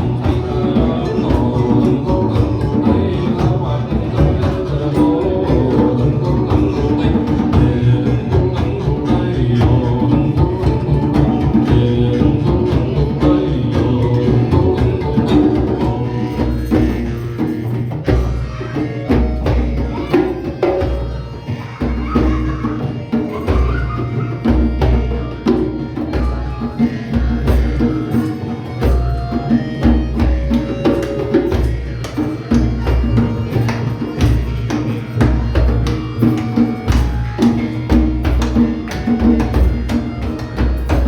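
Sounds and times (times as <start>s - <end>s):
hand percussion strikes: 0.0s - 41.0s.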